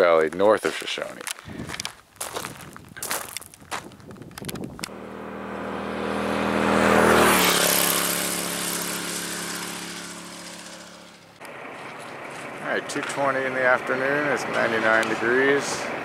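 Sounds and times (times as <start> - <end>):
vehicle engine driving past: 4.9 - 16.0.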